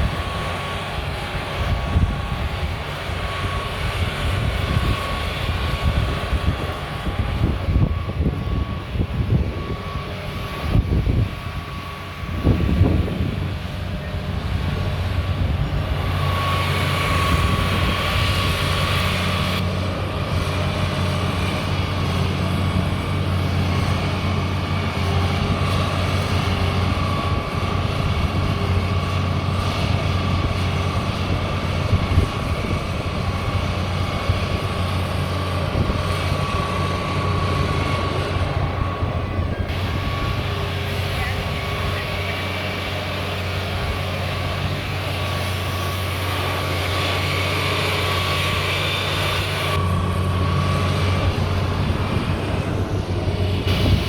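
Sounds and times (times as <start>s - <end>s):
excavator engine running: 0.0s - 54.0s
high whine: 46.2s - 54.0s.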